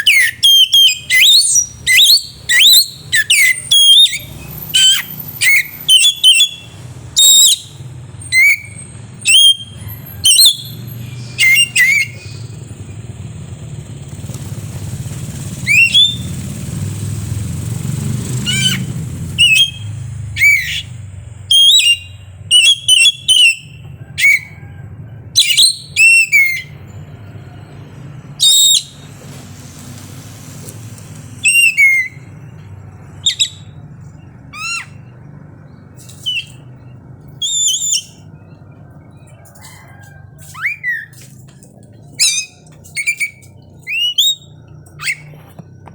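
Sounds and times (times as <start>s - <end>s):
bird singing whistled notes: 0.0s - 13.1s, 15.5s - 16.5s, 18.3s - 24.8s, 25.4s - 26.8s, 28.4s - 29.1s, 31.4s - 33.8s, 34.5s - 35.1s, 35.7s - 41.2s, 42.2s - 45.4s
passing vehicle engine rumble: 0.0s - 45.9s.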